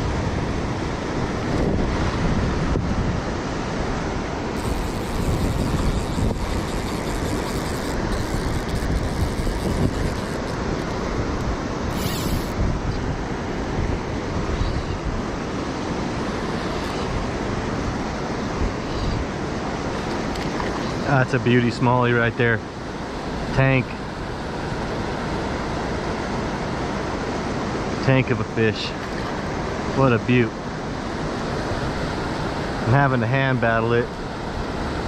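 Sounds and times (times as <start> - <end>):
wind buffeting microphone: 0.0 - 21.0
flowing river water: 0.0 - 35.0.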